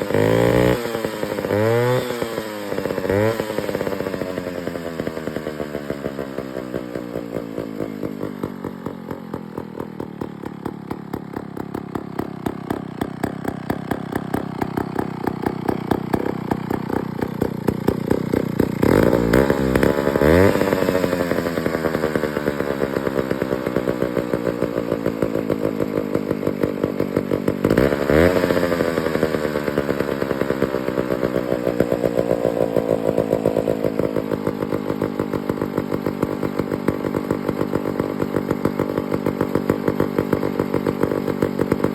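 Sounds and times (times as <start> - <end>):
chainsaw engine idling: 0.0 - 41.9.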